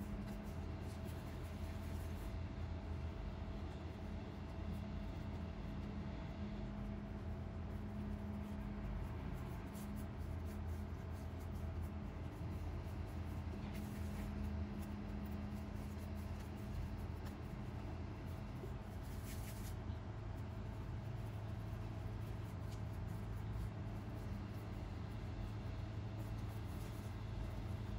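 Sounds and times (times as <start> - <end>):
steady low hum: 0.0 - 27.9
hands rolling dough on countertop: 7.5 - 27.9.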